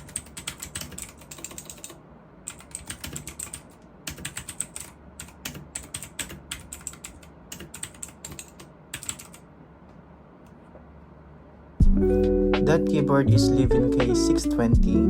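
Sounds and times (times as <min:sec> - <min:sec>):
mechanical keyboard typing: 0:00.0 - 0:09.4.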